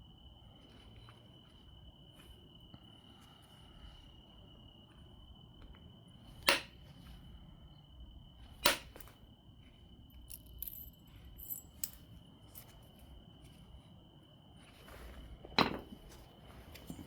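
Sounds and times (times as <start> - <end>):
cricket trilling: 0.0 - 17.0.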